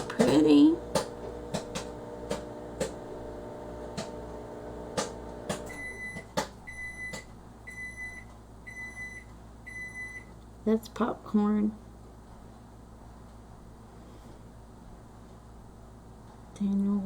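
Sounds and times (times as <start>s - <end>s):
popcorn popping: 0.0s - 7.3s
microwave oven humming: 0.0s - 10.4s
microwave beeps: 5.6s - 10.3s.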